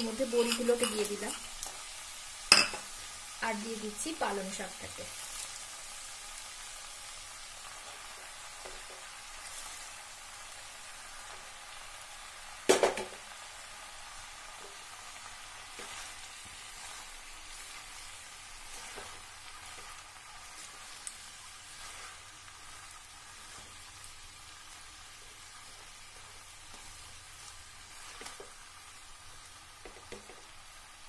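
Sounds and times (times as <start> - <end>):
spatula scraping pan: 0.0 - 1.6, 18.6 - 23.9
spinach hitting hot pan: 0.0 - 1.8, 2.5 - 2.9, 12.6 - 13.3
vegetables sizzling in oil: 0.0 - 31.0.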